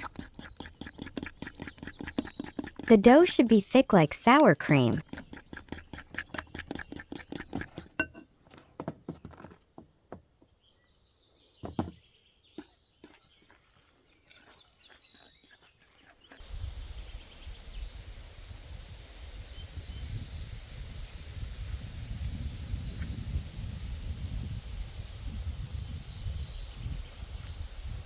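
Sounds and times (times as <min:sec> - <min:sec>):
spoon stirring batter in bowl: 0:00.0 - 0:08.2
thunk: 0:11.6 - 0:12.0.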